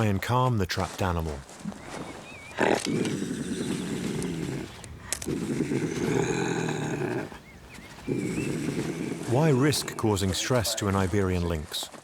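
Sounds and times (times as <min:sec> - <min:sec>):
lynx growling: 0:02.4 - 0:10.9.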